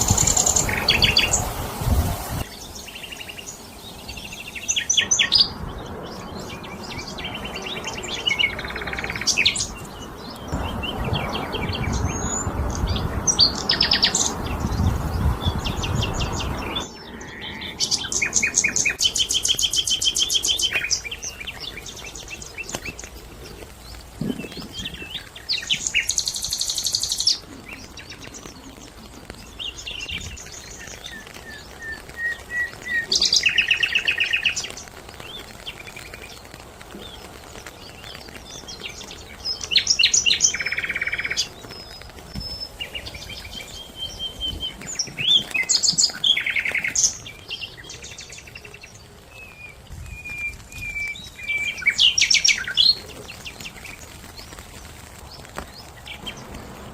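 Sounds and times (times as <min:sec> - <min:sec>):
wild birds chirping and trilling: 0:00.0 - 0:56.9
low rushing noise: 0:54.8 - 0:56.9.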